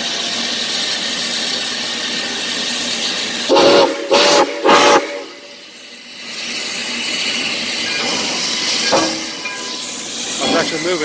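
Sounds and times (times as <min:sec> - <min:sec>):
steam hissing: 0:00.0 - 0:11.0
steam locomotive whistle: 0:03.4 - 0:05.6.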